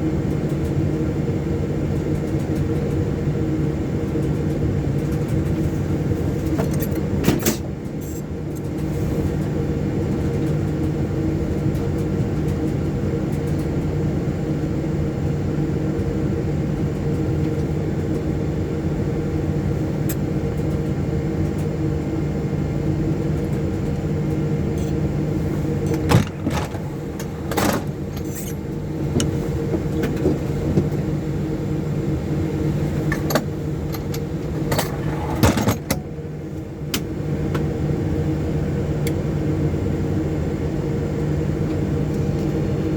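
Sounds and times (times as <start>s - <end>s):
cockpit hum: 16.4s - 42.9s.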